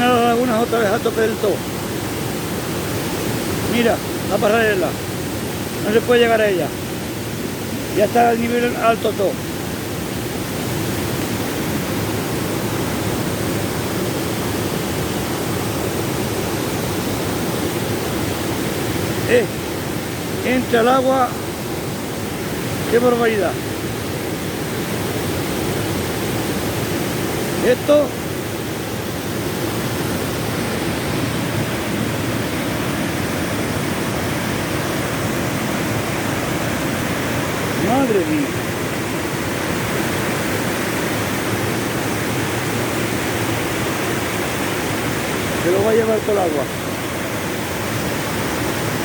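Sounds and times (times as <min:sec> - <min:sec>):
waterfall rushing water: 0:00.0 - 0:49.0.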